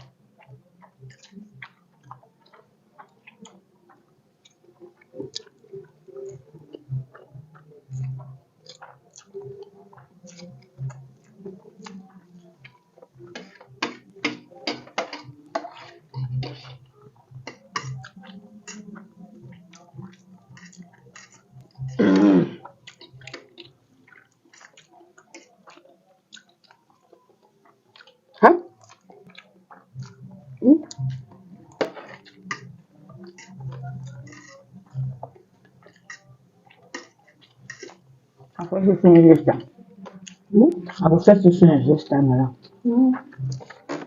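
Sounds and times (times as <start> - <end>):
people chewing: 0.0 - 41.4, 42.5 - 44.0
cutlery clicking on plates: 13.4 - 16.6.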